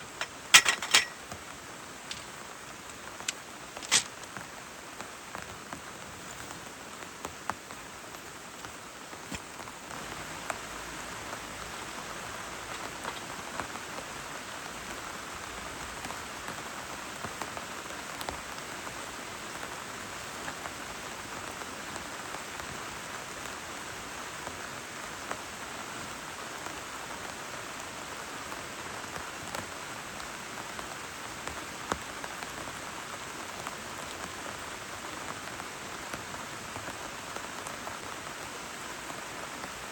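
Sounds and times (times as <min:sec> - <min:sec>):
raindrop hits: 0:00.0 - 0:19.7
steady rain falling: 0:00.0 - 0:39.9.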